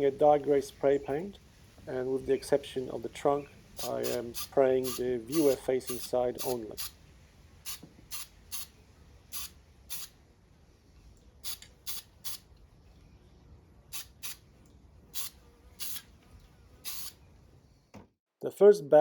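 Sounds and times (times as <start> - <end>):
spray paint can hissing: 3.6 - 7.0, 7.6 - 10.2, 11.4 - 12.5, 13.9 - 14.5, 15.1 - 16.2, 16.8 - 17.2.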